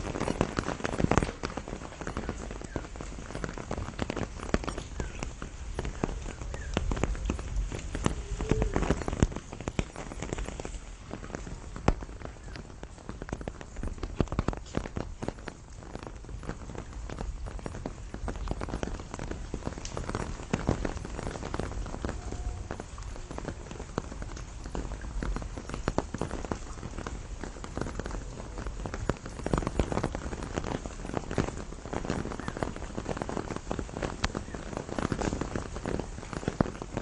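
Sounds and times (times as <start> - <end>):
rain pattering on leaves: 0.0 - 37.0.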